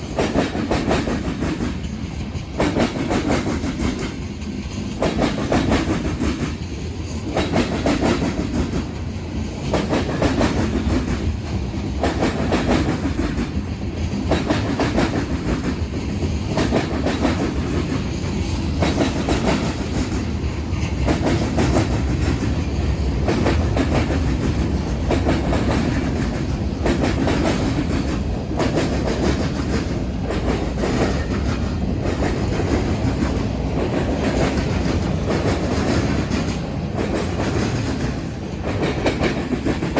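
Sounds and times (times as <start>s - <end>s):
train rumble: 0.0s - 39.9s
train wheels clacking: 0.0s - 39.9s.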